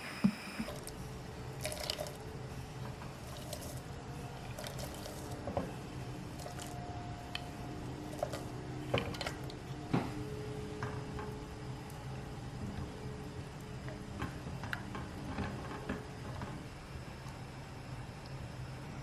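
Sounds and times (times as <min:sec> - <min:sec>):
steady low hum: 0:00.0 - 0:19.0
liquid squishing and dripping: 0:00.6 - 0:09.7.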